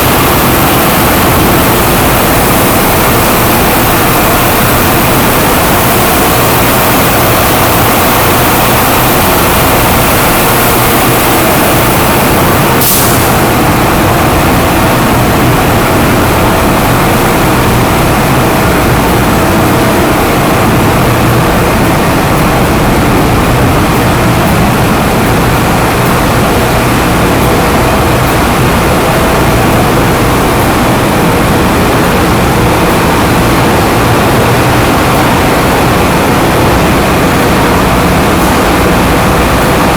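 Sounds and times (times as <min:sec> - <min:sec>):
engine room diesel machinery roar: 0:00.0 - 0:39.9.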